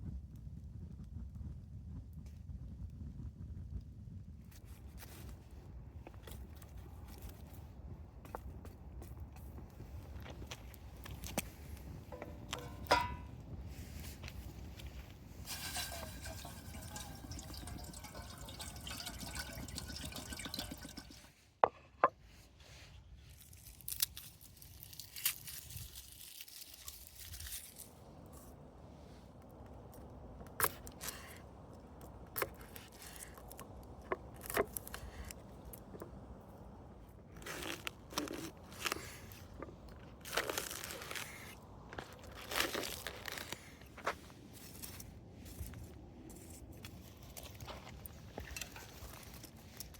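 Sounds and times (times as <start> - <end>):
water pouring into a pot: 15.4 - 21.3.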